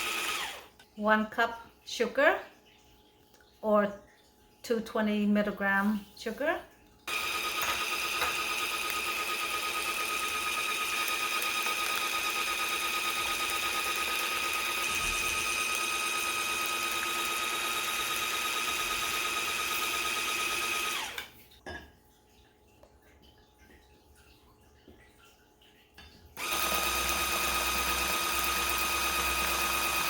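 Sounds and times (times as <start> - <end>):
electric mixer whining: 0.0 - 0.7, 7.1 - 21.3, 26.4 - 30.0.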